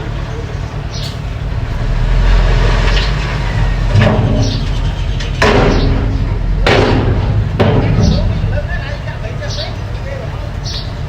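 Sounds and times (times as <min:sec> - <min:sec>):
bulldozer engine running: 0:00.0 - 0:11.0
sharp metal clanks: 0:03.9 - 0:09.7.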